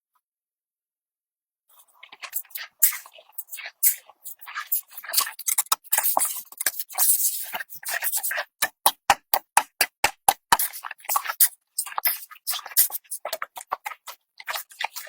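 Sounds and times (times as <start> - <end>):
hard objects clicking and knocking: 5.2 - 7.0, 7.7 - 11.5.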